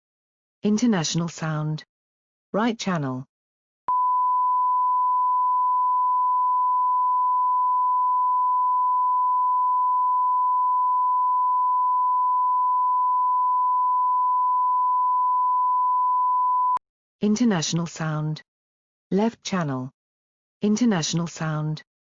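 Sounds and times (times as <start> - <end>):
steady sine-wave test tone: 3.9 - 16.8.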